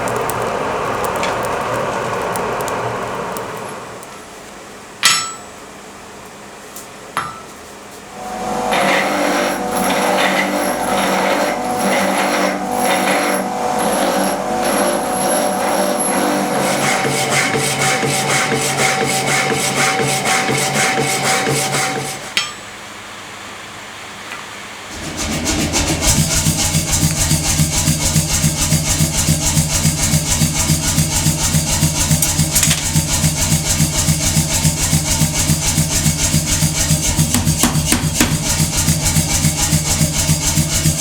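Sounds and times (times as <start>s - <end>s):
sharp metal clanks: 5.0s - 5.6s
rhythmic scraping of ringing steel: 8.1s - 22.4s, 24.9s - 41.0s.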